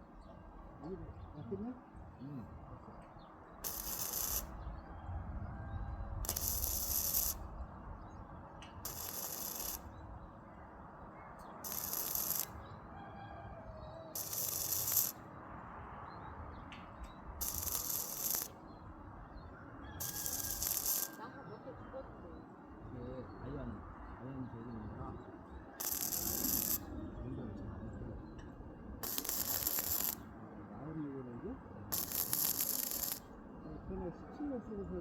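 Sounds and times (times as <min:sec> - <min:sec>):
arc welding hissing bursts: 0:03.6 - 0:04.5, 0:06.2 - 0:07.4, 0:08.8 - 0:09.9, 0:11.6 - 0:12.6, 0:14.2 - 0:15.2, 0:17.4 - 0:18.6, 0:20.0 - 0:21.2, 0:25.8 - 0:26.8, 0:29.0 - 0:30.2, 0:31.9 - 0:33.3.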